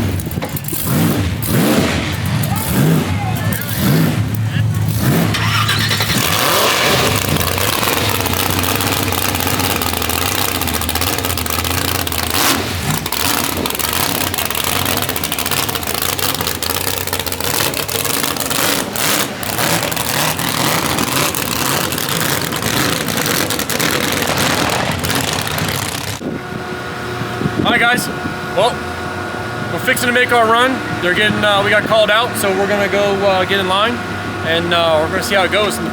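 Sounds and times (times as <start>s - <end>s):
sharp engine cracks: 0.0s - 26.2s
race car engine idling and revving: 0.0s - 35.9s.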